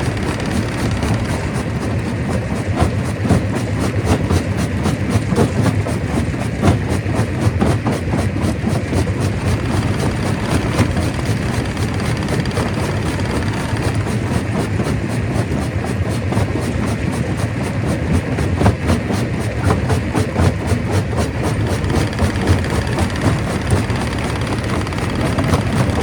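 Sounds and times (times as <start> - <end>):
stone crusher running: 0.0 - 4.2, 8.9 - 15.7, 20.7 - 26.0.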